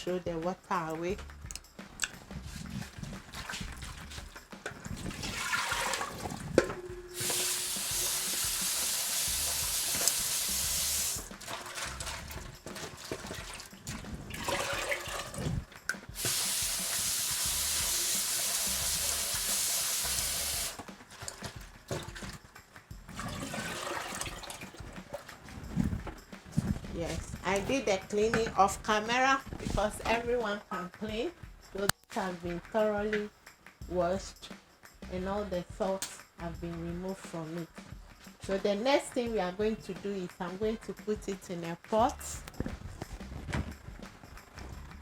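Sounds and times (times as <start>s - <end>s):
water running from a tap: 2.4s - 22.4s, 23.1s - 25.3s
handling knocks and clatter: 11.3s - 16.1s, 23.1s - 30.2s, 42.5s - 44.2s.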